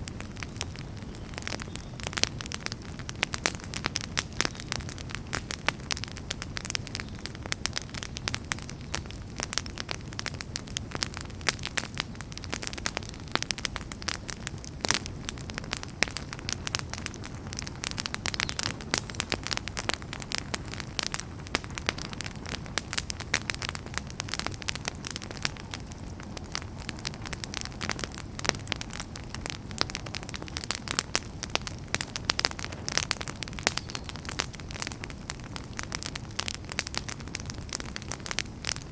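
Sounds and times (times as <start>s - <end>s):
campfire crackling and popping: 0.0s - 38.9s
low rumble of flames: 0.0s - 38.9s.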